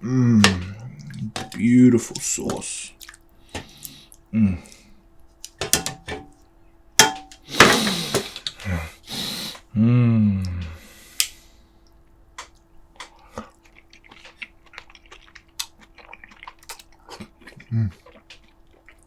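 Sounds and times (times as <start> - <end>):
man humming mmm: 0.0 - 1.4, 4.3 - 4.9, 8.6 - 10.9
chewing and lip smacks: 0.5 - 4.9, 11.2 - 19.0
man slurping and sucking: 9.0 - 9.6.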